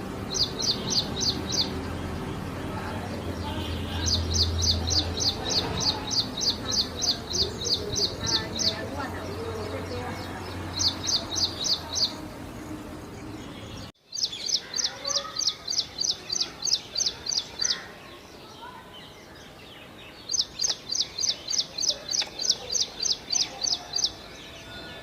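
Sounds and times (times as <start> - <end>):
bird singing sharp high notes: 0.3 - 1.9.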